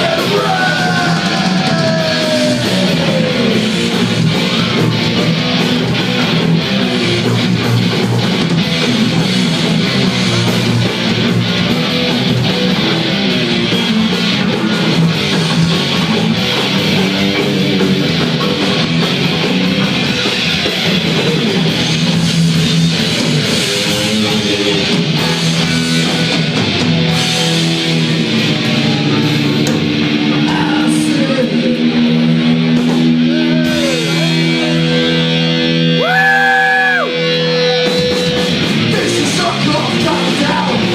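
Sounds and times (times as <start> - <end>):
vocals: 0.0 - 4.2, 30.3 - 35.3, 38.8 - 40.9
bass: 0.0 - 40.9
distorted electric guitars: 0.0 - 40.9
drums: 0.0 - 40.9.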